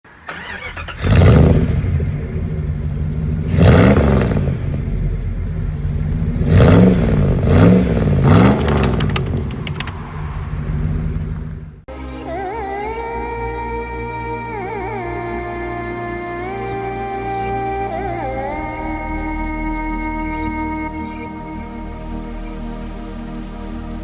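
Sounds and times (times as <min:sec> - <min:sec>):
vehicle engine revving: 0:00.3 - 0:11.8
music: 0:11.9 - 0:24.0.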